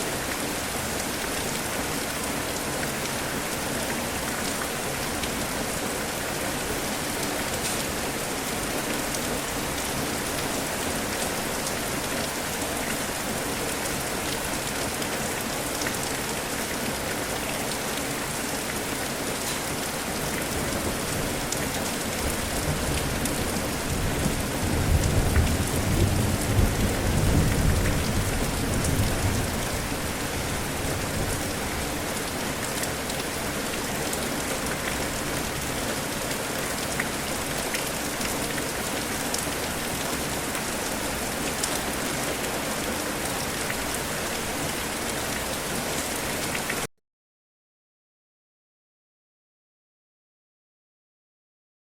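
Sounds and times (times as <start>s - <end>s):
steady rain falling: 0.0s - 46.9s
low roll of thunder: 24.1s - 29.9s.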